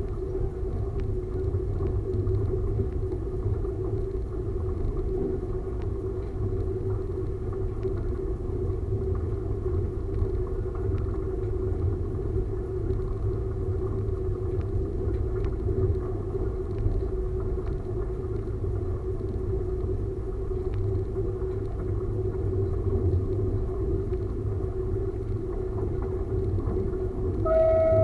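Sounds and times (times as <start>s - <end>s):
faint ticks: 0.0s - 27.6s
steady hum: 0.0s - 28.0s
railcar engine and wheels rumbling: 21.1s - 28.0s.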